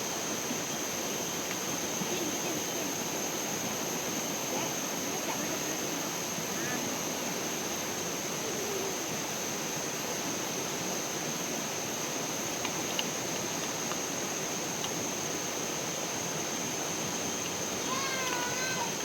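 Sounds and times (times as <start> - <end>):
flowing water rushing: 0.0 - 19.0
faint ticks: 12.5 - 14.0.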